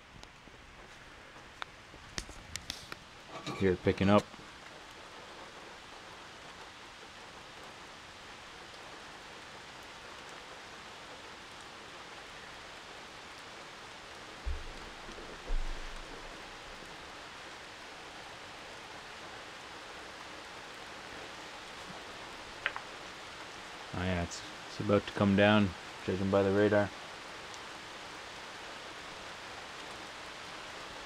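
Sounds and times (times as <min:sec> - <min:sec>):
rain on a tin roof: 0:00.0 - 0:31.0
low thumps: 0:14.4 - 0:16.4.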